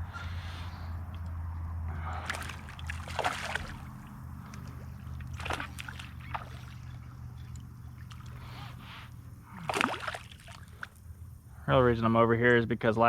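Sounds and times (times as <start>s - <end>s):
steady low hum: 0.0s - 13.0s
water splashing around kayak: 0.1s - 11.0s
short sharp splashes: 1.9s - 8.6s, 9.5s - 11.0s.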